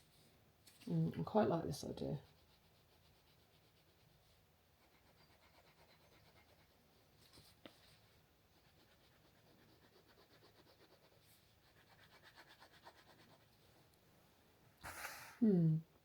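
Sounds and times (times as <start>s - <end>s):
scratching strokes of drawing: 0.0s - 13.7s.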